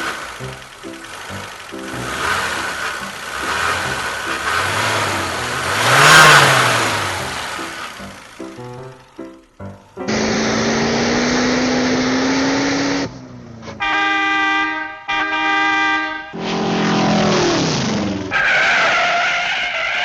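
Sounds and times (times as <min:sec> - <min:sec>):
car engine revving: 0:00.0 - 0:13.8, 0:16.3 - 0:20.0
car horn blasts: 0:13.7 - 0:16.5.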